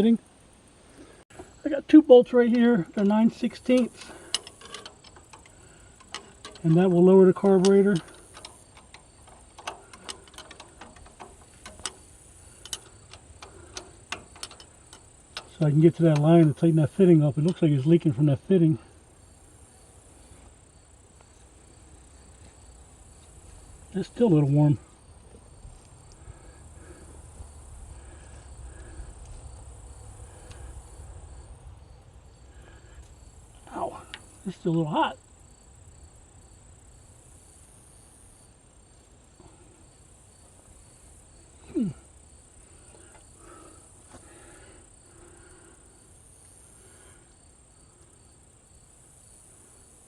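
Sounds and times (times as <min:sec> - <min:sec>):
insects chirping: 0:00.0 - 0:50.0
faint metallic wrench clicks: 0:02.5 - 0:17.6.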